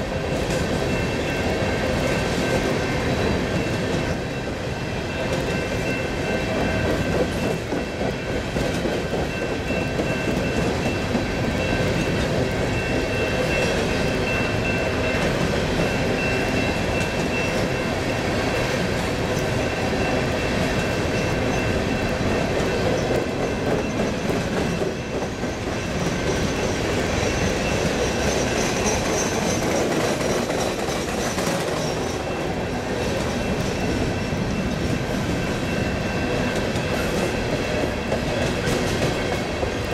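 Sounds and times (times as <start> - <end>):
train wheels clacking on rails: 0.0 - 39.9
high wheel squeal: 23.8 - 32.4.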